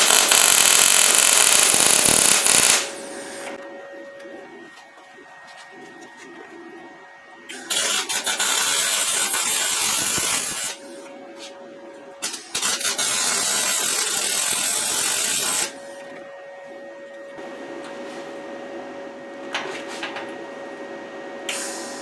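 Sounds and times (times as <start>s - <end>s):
arc welding crackling hiss: 0.0s - 3.6s, 7.6s - 10.8s, 12.2s - 15.8s
welder hum: 0.0s - 6.8s, 7.5s - 22.0s.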